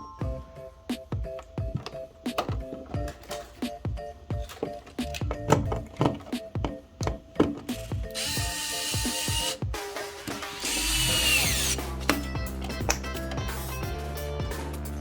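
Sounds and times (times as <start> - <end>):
background music: 0.0 - 15.0
handheld power tool running: 8.1 - 11.8.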